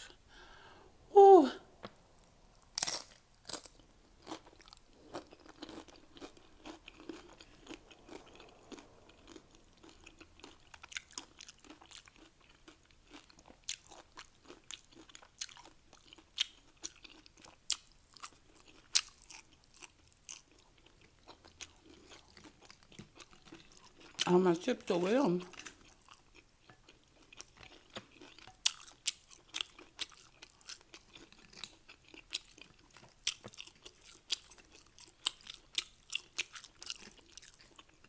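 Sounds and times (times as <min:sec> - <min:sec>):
chewing crunchy chips: 0:01.8 - 0:38.0.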